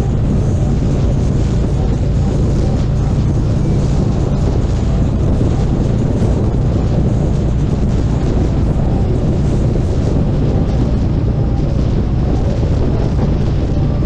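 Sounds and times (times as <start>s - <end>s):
motorcycle engine rumbling: 0.0s - 14.0s
wind noise on microphone: 0.0s - 14.0s.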